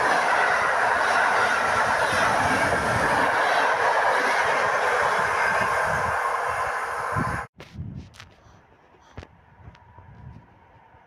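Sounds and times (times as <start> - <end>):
train carriages rolling on rails: 0.0 - 7.4.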